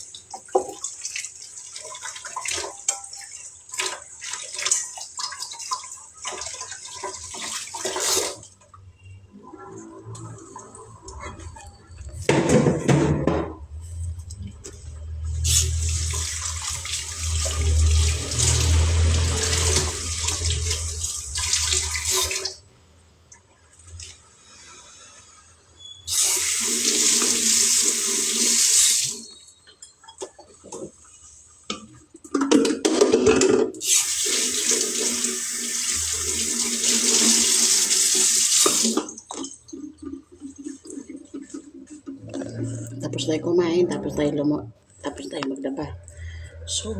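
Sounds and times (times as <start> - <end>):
tap water running into sink: 0.0 - 9.0, 9.7 - 22.6, 26.1 - 42.9
tap running into sink: 12.2 - 22.5.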